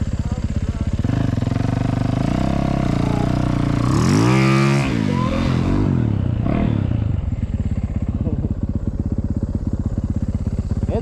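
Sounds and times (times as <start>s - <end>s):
snow bike engine revving: 0.8s - 7.3s.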